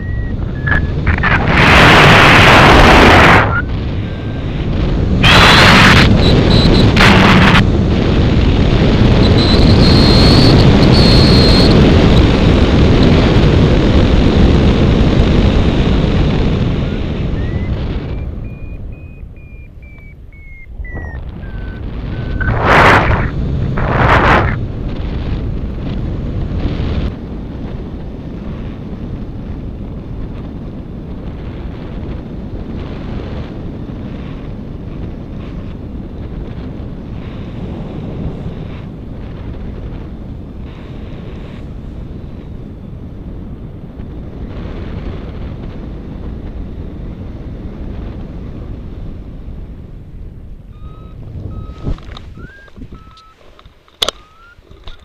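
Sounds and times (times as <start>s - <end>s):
wind buffeting microphone: 0.0s - 55.0s
air rushing: 19.8s - 24.8s.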